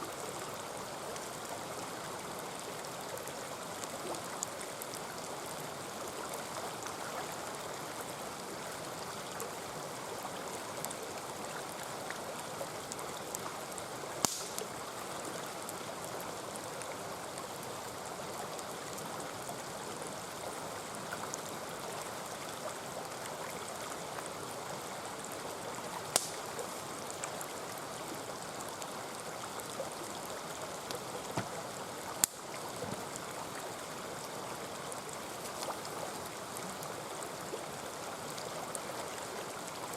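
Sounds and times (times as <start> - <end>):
stream running: 0.0 - 39.9
campfire crackling: 0.3 - 39.9
sharp fire pops: 14.2 - 14.7, 26.1 - 26.4.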